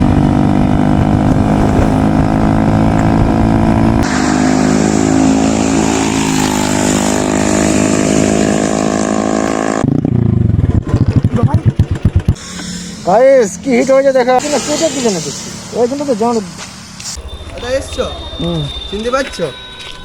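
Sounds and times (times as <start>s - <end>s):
motorcycle engine running: 0.0s - 14.6s.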